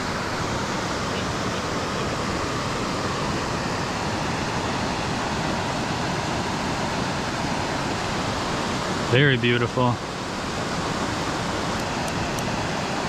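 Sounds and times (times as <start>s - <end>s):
creek water flowing: 0.0s - 13.0s.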